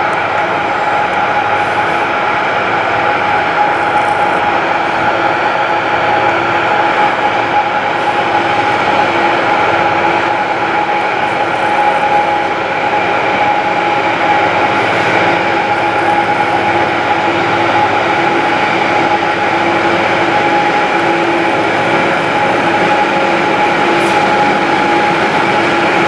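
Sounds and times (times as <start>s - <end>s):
train running close by: 0.0s - 26.0s.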